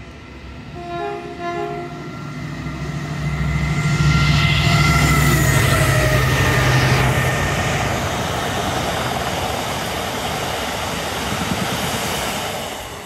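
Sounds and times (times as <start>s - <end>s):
locomotive engine drone and whine: 0.0s - 11.9s
wagon wheels rumbling on rail: 3.9s - 13.0s.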